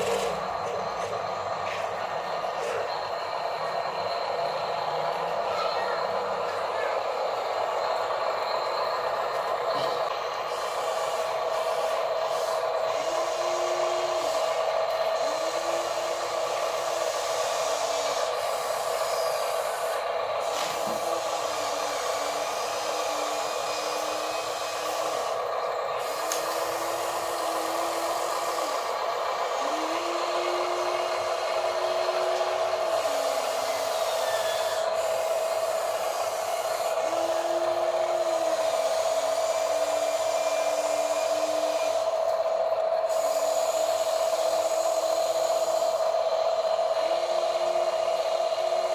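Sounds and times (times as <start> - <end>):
small electric motor whine: 10.5 - 14.6, 26.0 - 42.2.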